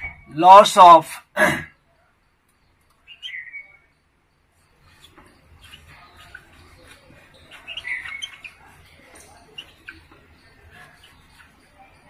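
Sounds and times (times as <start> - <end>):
bird chirp: 0.0 - 0.7, 1.6 - 12.0
person speaking: 0.3 - 1.6
faint scratchy rustling: 4.5 - 12.0.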